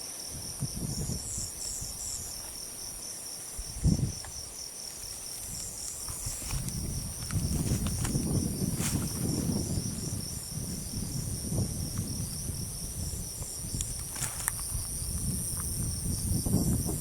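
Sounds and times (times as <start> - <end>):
crickets chirping: 0.0 - 17.0
low wind rumble: 0.3 - 17.0.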